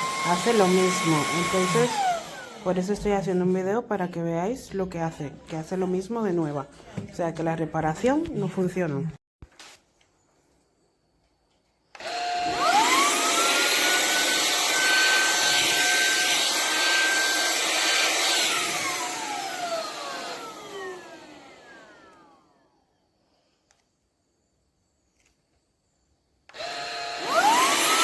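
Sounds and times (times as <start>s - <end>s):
vacuum motor whine: 0.0s - 2.8s, 12.0s - 22.8s, 26.5s - 28.0s.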